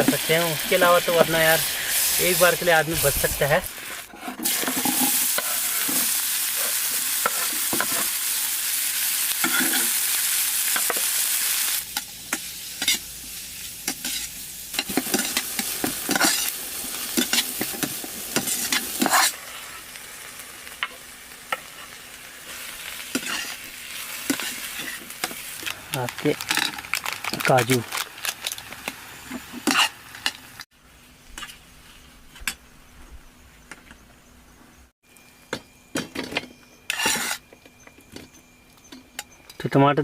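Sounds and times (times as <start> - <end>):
food sizzling in a frying pan: 0.0 - 30.7
utensil scraping a pan: 36.9 - 37.5.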